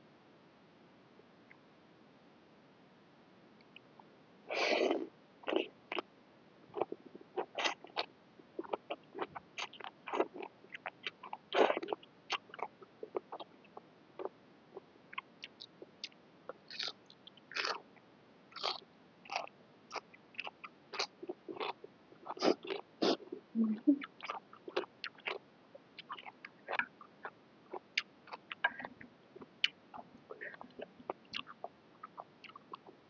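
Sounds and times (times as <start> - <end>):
person chewing food: 4.5 - 6.0, 6.8 - 13.5, 15.1 - 17.8, 18.6 - 23.4, 24.0 - 33.0.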